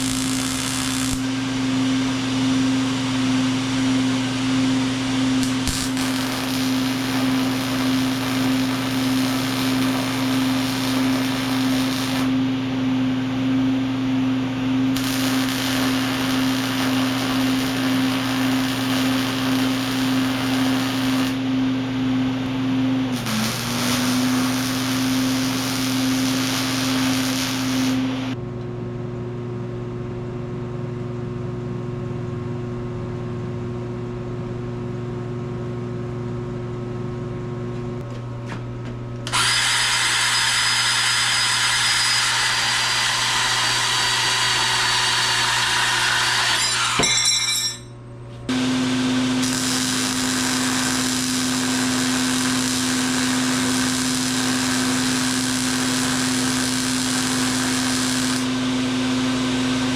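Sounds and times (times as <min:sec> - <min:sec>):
power tools cutting steel: 0:00.0 - 0:01.5, 0:05.4 - 0:12.4, 0:14.9 - 0:21.4, 0:23.1 - 0:28.4, 0:39.3 - 0:47.8, 0:48.5 - 0:59.9.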